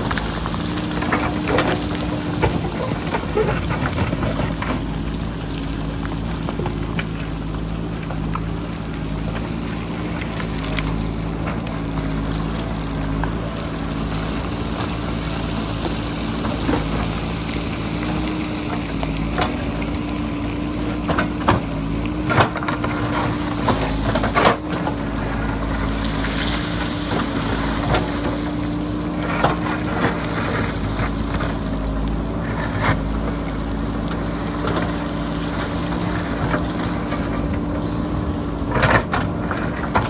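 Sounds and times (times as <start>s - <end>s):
diesel engine running under load: 0.0s - 40.0s.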